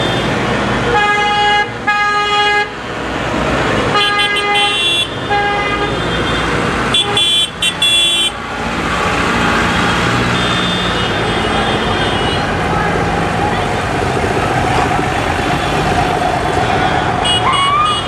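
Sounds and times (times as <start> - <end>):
tractor horns honking: 0.0 - 2.8, 3.7 - 8.4, 9.6 - 13.7, 15.3 - 18.0
tractor engines rumbling: 0.0 - 18.0.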